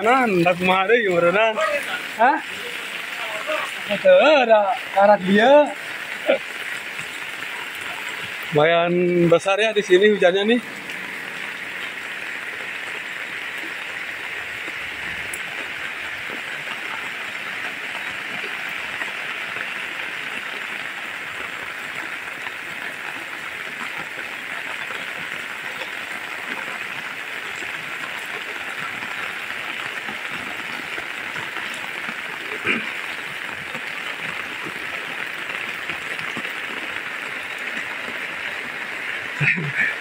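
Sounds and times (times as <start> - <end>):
heavy rain on roofs and pavement: 0.0 - 40.0.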